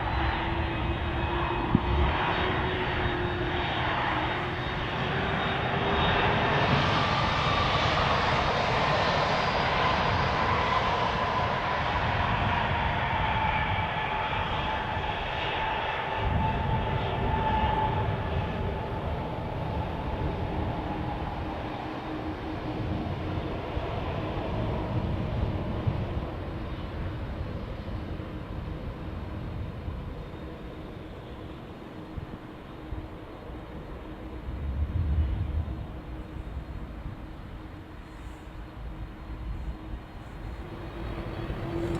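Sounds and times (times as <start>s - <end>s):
jet engines rumbling and whining: 0.0s - 41.9s.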